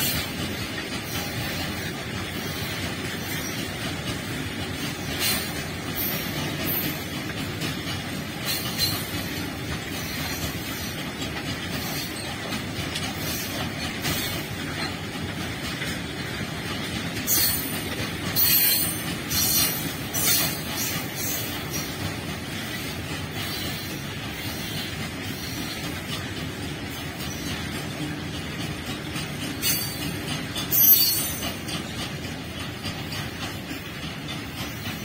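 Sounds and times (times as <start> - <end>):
freight wagon wheels rumbling: 0.0 - 35.0
high-pitched wheel squeals: 30.7 - 31.4.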